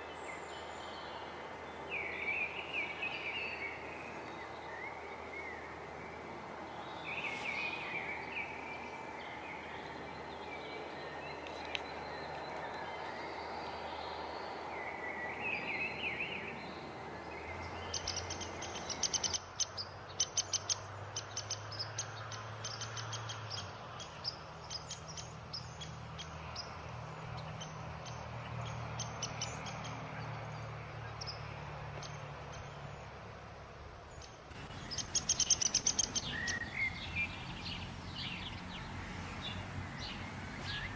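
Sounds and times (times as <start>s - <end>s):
outdoor background noise: 0.0s - 40.9s
birds warbling calls: 6.7s - 33.1s, 34.1s - 40.9s
birds rapid sharp high chips: 34.5s - 36.6s.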